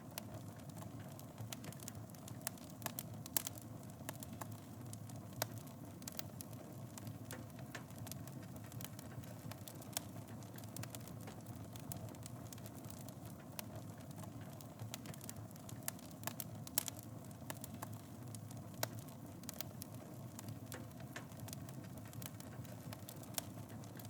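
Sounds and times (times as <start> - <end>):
fire crackling and popping: 0.0 - 24.0
wood fire burning: 0.0 - 24.0.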